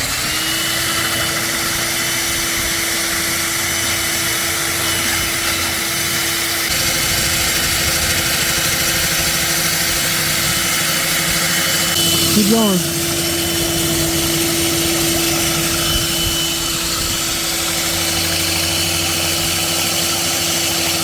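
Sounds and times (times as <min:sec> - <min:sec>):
core drill motor running: 0:00.0 - 0:21.0
drill bit grinding: 0:00.0 - 0:21.0.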